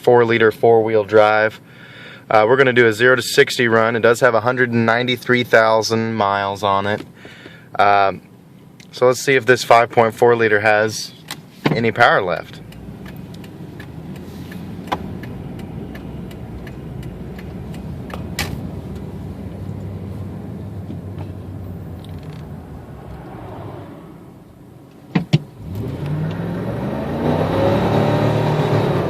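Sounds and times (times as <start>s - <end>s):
truck engine idling: 12.1s - 23.5s
sharp clicks: 12.6s - 19.1s
engine revving up hard: 21.5s - 24.9s, 25.5s - 29.0s.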